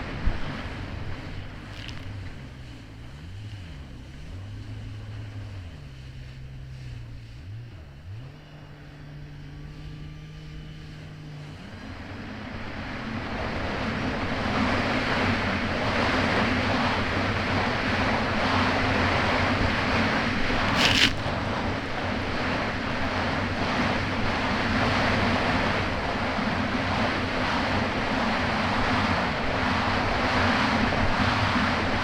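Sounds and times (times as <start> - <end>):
water and wind rushing: 0.0 - 7.5, 11.0 - 32.0
jet ski engine revving: 0.0 - 21.5.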